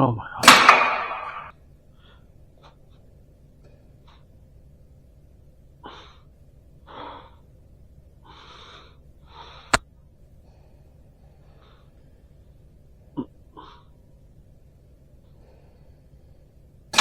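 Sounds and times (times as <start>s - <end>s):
joint cracking pop: 0.4s - 1.5s
heavy breaths: 5.8s - 12.6s, 15.2s - 16.8s.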